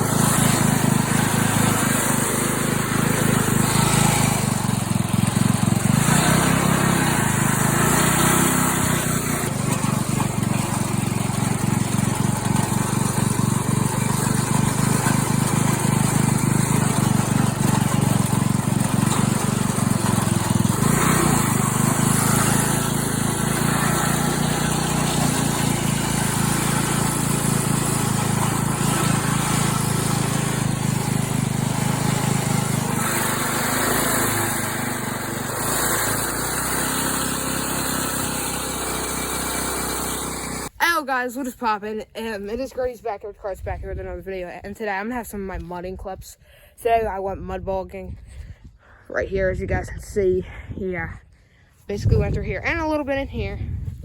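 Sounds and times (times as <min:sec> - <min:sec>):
small tractor engine running: 0:00.0 - 0:41.0.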